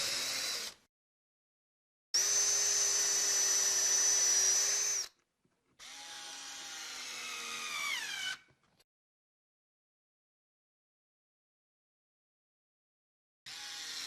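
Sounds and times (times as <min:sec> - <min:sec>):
cordless drill motor whine: 0:00.0 - 0:00.8, 0:02.2 - 0:05.1, 0:05.8 - 0:08.4, 0:13.5 - 0:14.0.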